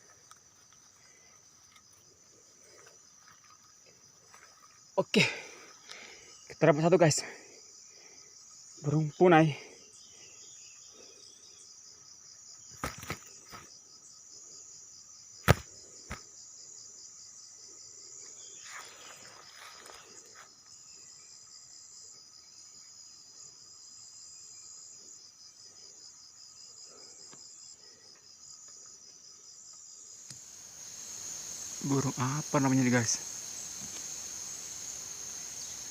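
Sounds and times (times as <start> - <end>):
insects chirring: 0.0 - 35.9.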